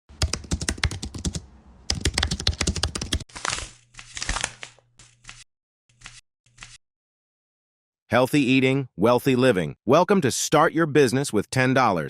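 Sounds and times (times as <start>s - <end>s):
rapid typing-like clicking: 0.2s - 3.2s.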